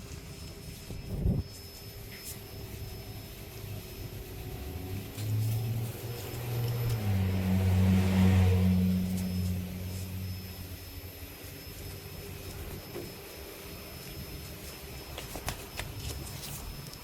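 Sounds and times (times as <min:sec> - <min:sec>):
small engine idling: 0:01.8 - 0:15.1.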